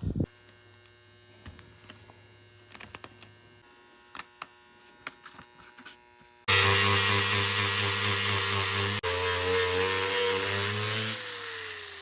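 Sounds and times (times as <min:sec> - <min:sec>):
power tool starting: 0:06.5 - 0:12.0.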